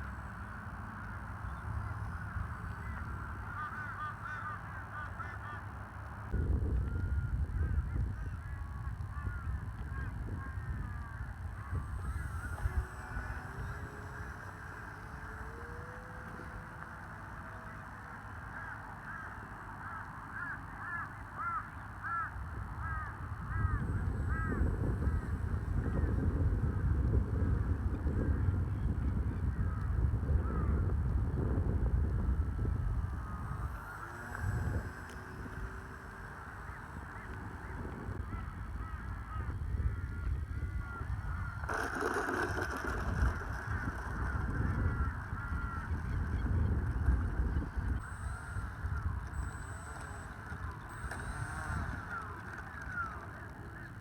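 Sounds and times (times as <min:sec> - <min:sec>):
bird caw-like calls: 0:01.0 - 0:05.9, 0:09.1 - 0:26.3, 0:33.1 - 0:54.0
wind rumble on microphone: 0:06.2 - 0:17.7, 0:22.1 - 0:54.0.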